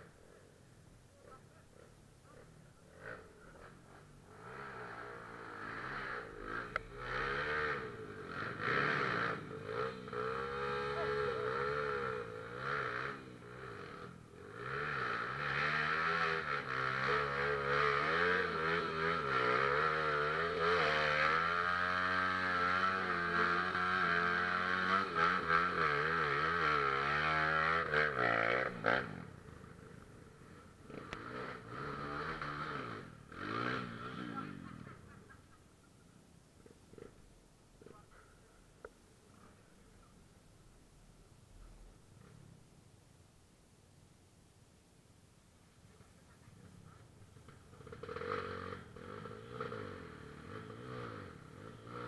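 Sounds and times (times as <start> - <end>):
motorcycle engine revving: 2.3 - 35.6, 36.6 - 38.1, 46.0 - 52.0.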